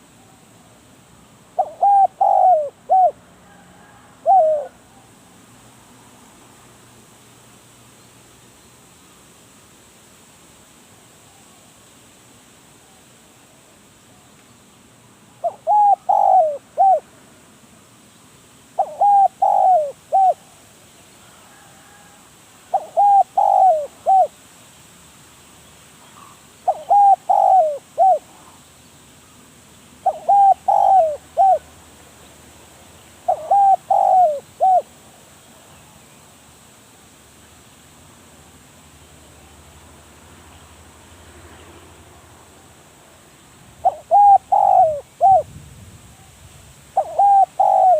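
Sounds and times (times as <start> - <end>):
dove cooing: 1.6 - 5.1, 15.4 - 17.1, 18.8 - 20.6, 21.6 - 24.4, 26.1 - 28.6, 30.0 - 31.7, 33.2 - 35.0, 43.8 - 45.5, 47.0 - 47.9.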